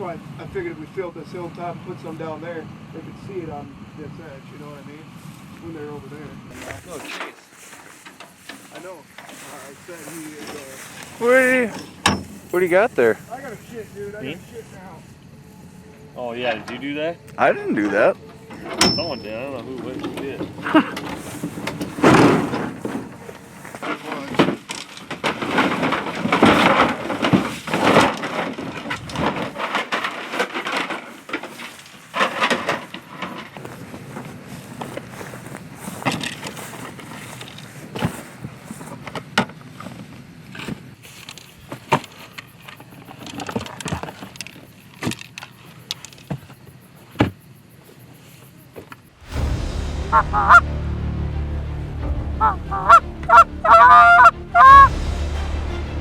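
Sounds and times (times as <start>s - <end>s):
geese honking: 12.5s - 18.8s, 50.1s - 50.8s, 52.1s - 55.0s
background music with heavy bass: 49.2s - 56.0s.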